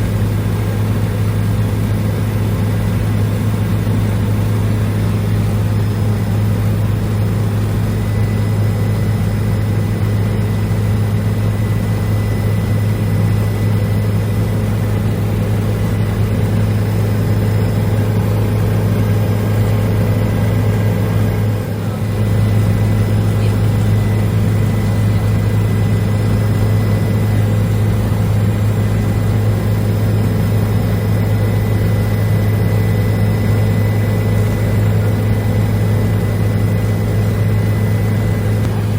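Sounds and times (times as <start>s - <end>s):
helicopter low drone: 0.0s - 38.9s
faint high whine: 3.5s - 38.9s.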